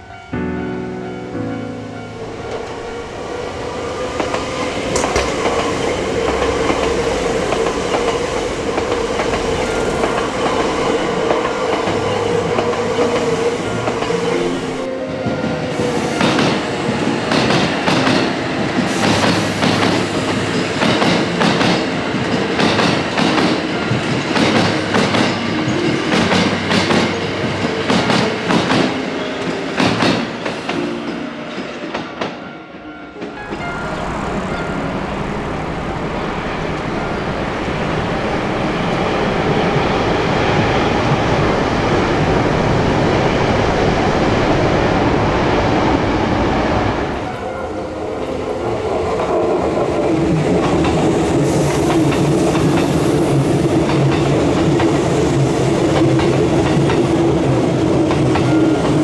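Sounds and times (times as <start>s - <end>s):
electric train hum: 0.0s - 59.0s.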